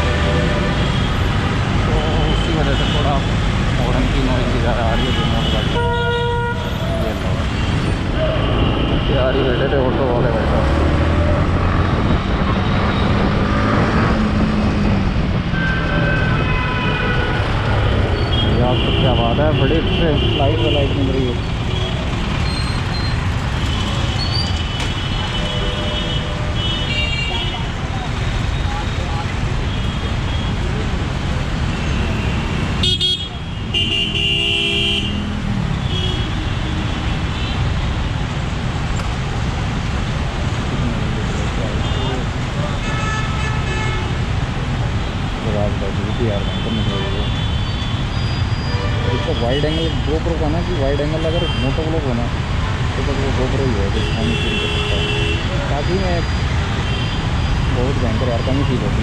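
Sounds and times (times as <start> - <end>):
wind and road noise: 0.0 - 59.0
vehicle horn honking: 4.9 - 6.8, 32.0 - 36.7, 54.0 - 55.8.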